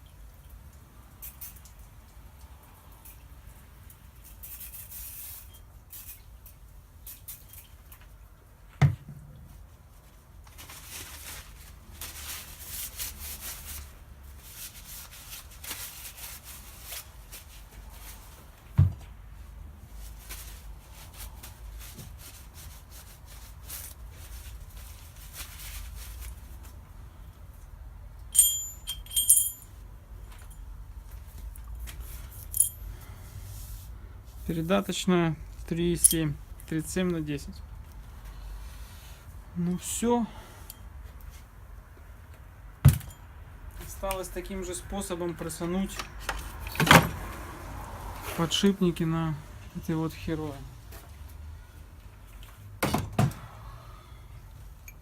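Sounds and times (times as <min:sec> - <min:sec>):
ringing metallic clinks: 0:28.3 - 0:29.8
metal parts scraping: 0:28.4 - 0:29.7.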